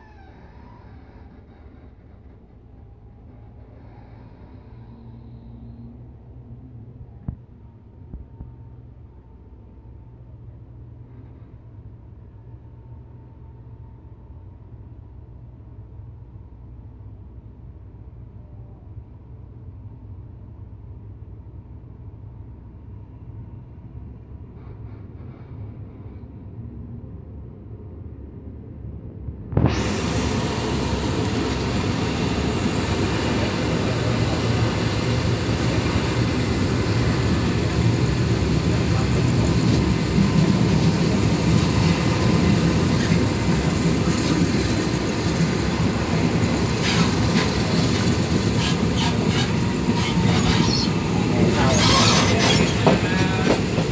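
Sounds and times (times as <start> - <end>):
train rumbling on rails: 0.0 - 53.9.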